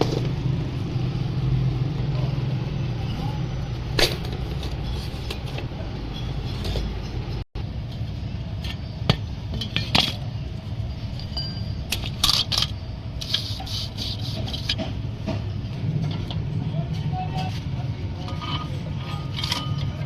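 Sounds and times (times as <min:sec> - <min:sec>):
sharp metallic clinks: 0:08.7 - 0:13.0.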